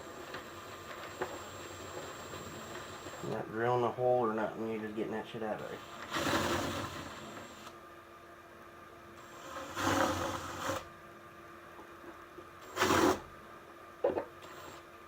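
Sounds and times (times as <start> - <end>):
drill bit bursts: 5.6 - 7.7, 9.2 - 10.9, 12.6 - 13.3.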